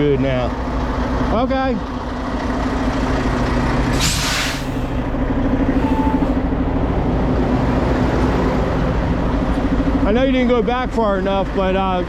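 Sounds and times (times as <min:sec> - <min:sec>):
diesel truck engine running: 0:00.0 - 0:12.0
air brake hiss: 0:03.9 - 0:05.0.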